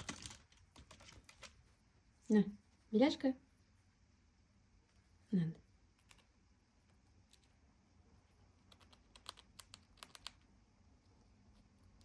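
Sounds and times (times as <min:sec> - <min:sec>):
squirrel nibbling dry clicks: 0:00.0 - 0:01.6, 0:08.6 - 0:12.0.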